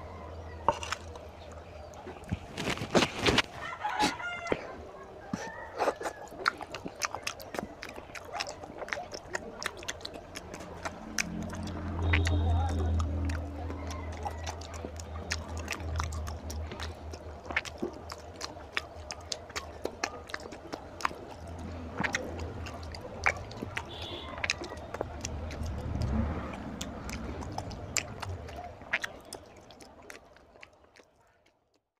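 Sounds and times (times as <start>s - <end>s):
man chewing wetly: 0.0s - 31.9s
low hum: 10.2s - 18.9s.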